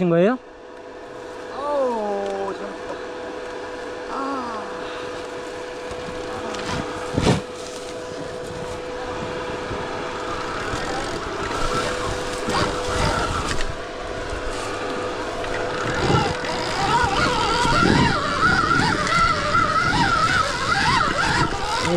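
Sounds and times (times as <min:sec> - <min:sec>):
electric motor whine: 0:00.0 - 0:21.9
noisy rush: 0:00.0 - 0:21.9.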